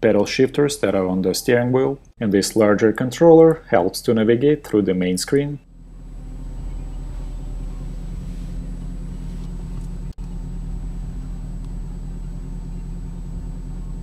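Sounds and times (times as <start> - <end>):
car engine idling: 5.6 - 14.0.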